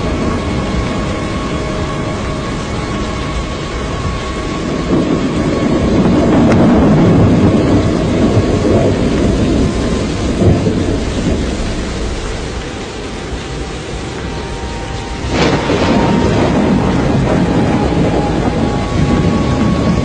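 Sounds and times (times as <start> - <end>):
thunder-like rumble: 0.0 - 20.0
wind roaring: 0.0 - 20.0.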